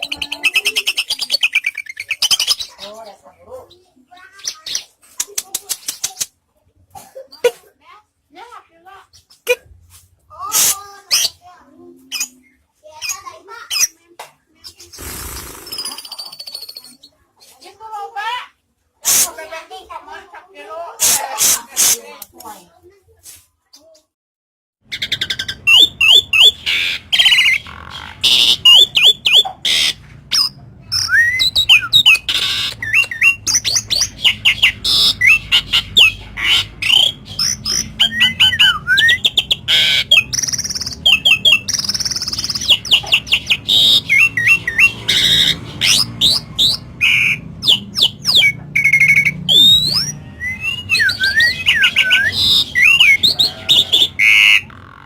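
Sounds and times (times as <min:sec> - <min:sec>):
starling singing shrill chatters: 0:14.7 - 0:17.1, 0:24.9 - 0:55.0.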